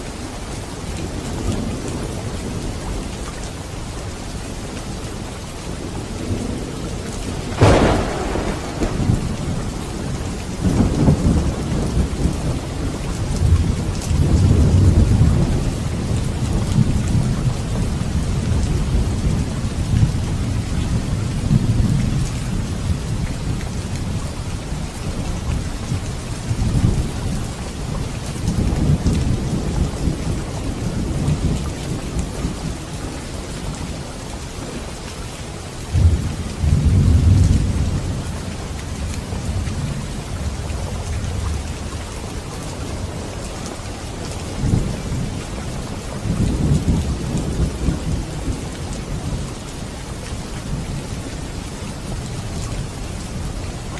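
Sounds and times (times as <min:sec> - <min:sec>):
heavy rain: 0:00.0 - 0:53.9
low rolling thunder: 0:05.8 - 0:34.0, 0:35.9 - 0:42.4, 0:43.0 - 0:49.6
sharp thunderclap: 0:07.6 - 0:12.7.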